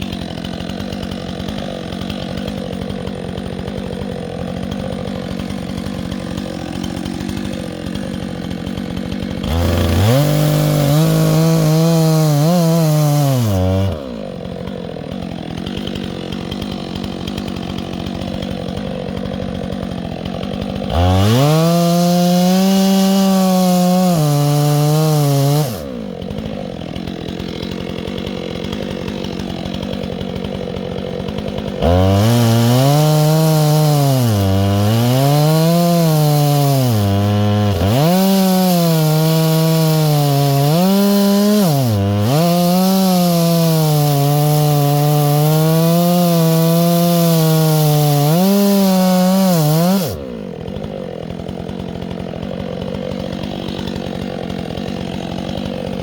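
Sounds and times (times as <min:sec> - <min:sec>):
chainsaw revving and idling: 0:00.0 - 0:56.0.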